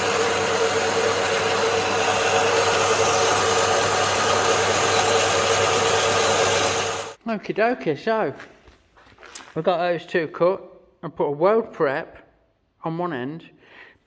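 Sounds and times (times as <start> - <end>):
metalworking machine humming: 0.0 - 7.2.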